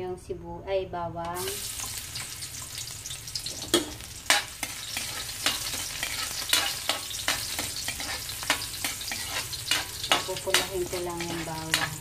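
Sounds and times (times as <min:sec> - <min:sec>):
garlic sizzling in a wok: 0:01.3 - 0:12.0
spatula scraping a pan: 0:04.3 - 0:12.0.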